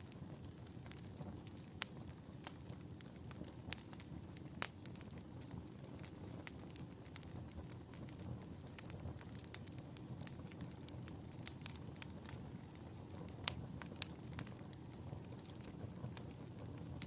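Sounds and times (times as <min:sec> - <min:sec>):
fire crackling pops: 0:00.0 - 0:17.0.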